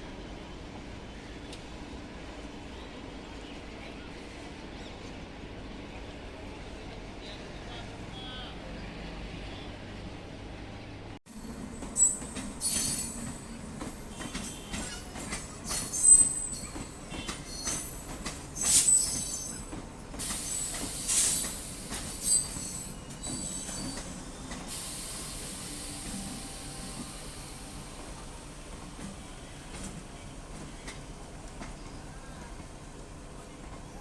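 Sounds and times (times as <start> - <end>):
train hiss: 11.3 - 31.7
train wheel squeals: 11.4 - 28.4
train clattering: 11.4 - 32.8.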